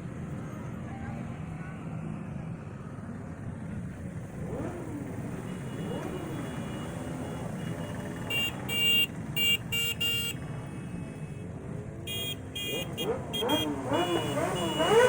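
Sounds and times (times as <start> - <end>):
passing cars and motorcycles: 0.0 - 15.0
vehicle horn toots: 5.4 - 11.4, 12.1 - 15.0.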